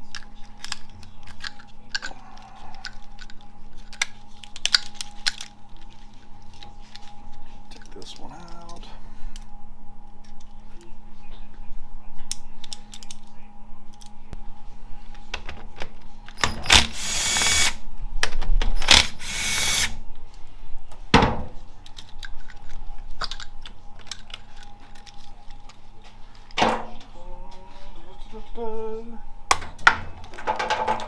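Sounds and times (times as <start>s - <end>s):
cordless power driver spinning: 16.4s - 17.8s, 18.8s - 19.9s.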